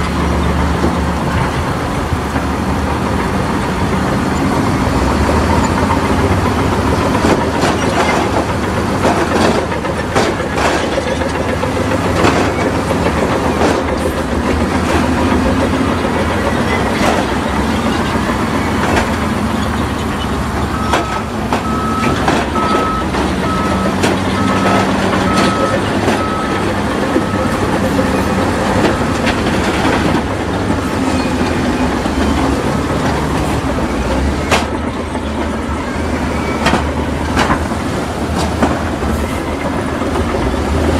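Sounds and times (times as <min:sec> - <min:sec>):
clanks of tracks and rock: 0:00.0 - 0:40.9
heavy machinery diesel engine: 0:00.0 - 0:40.9
reversing alarm beeping: 0:20.7 - 0:29.3.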